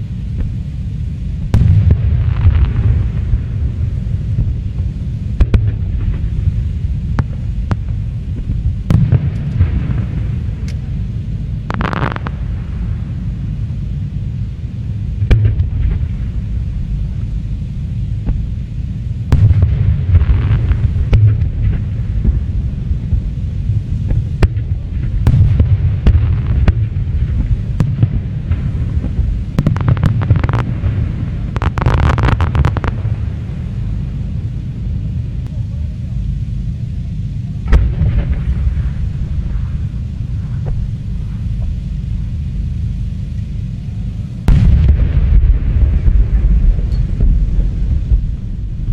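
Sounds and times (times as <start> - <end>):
low rumble: 0.0 - 48.9
fireworks crackling: 1.4 - 13.7, 19.3 - 34.4
fireworks bangs: 1.5 - 10.8, 11.6 - 13.2, 19.3 - 23.3, 24.1 - 33.8, 44.5 - 48.9.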